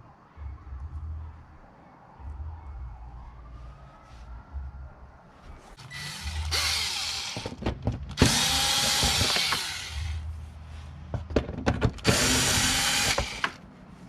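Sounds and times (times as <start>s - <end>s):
handheld power tool running: 5.9s - 7.5s, 8.2s - 10.2s, 12.0s - 13.6s.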